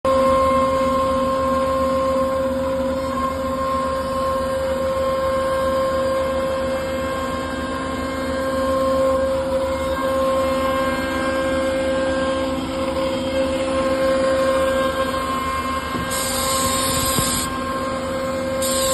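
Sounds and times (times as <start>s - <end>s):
router spindle whining: 11.7s - 18.9s.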